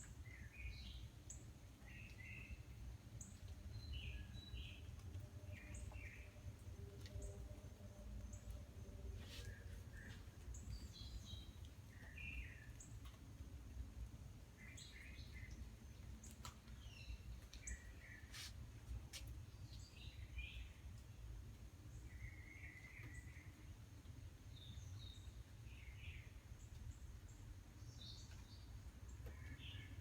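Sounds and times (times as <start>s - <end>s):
small birds chirping: 8.2s - 13.3s, 14.6s - 21.1s.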